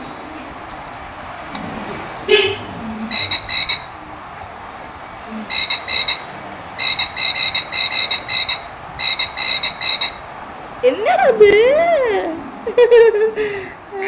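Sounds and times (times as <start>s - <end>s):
frog croaking: 5.3s - 10.2s.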